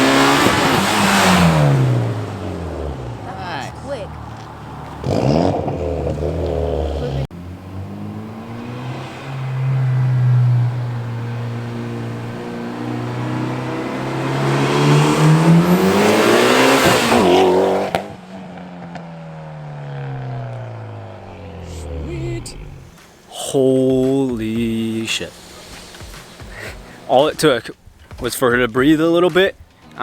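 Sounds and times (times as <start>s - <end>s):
car engine accelerating hard: 0.0s - 23.8s.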